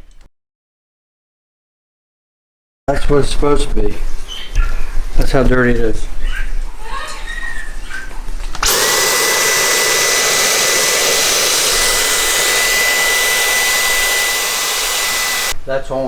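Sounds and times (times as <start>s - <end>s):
electric blower motor whining: 8.6s - 15.6s.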